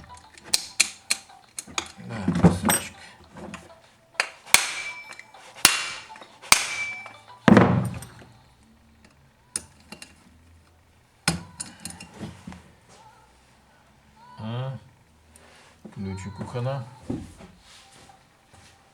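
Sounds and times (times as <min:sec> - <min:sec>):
metal tools clinking: 0:00.0 - 0:13.1.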